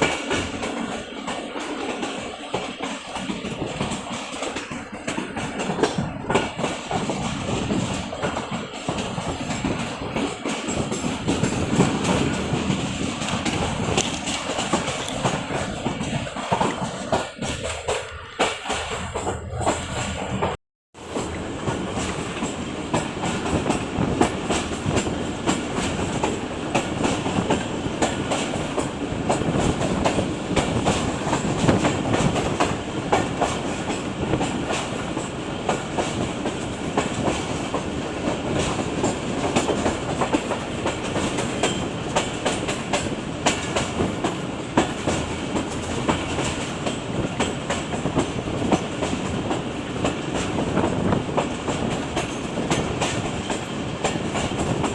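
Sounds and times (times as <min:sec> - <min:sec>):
train rumbling on rails: 0:00.0 - 0:54.9.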